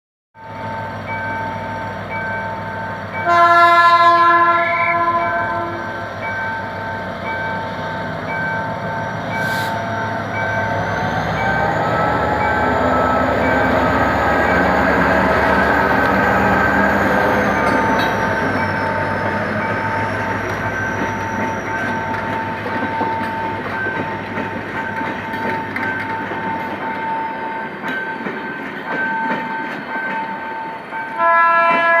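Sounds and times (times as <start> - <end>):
pulsing warning bell: 0.4 - 31.8
train cars rumbling and clattering: 0.4 - 32.0
locomotive air horn: 3.2 - 6.0, 31.2 - 32.0.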